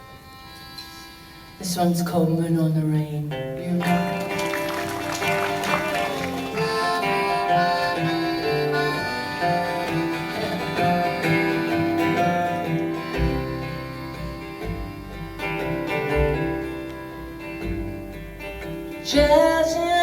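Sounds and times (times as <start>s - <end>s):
plucked acoustic guitar: 3.3s - 20.0s
low bass notes: 11.9s - 20.0s.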